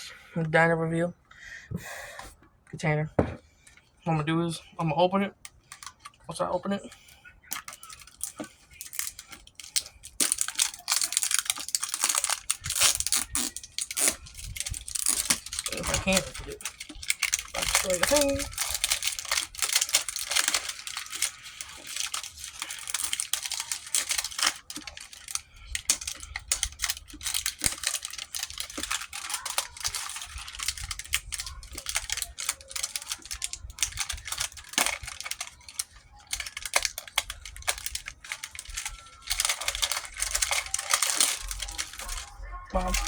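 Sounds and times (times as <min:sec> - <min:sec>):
plastic packaging crinkling and cracking: 0:04.6 - 0:43.0.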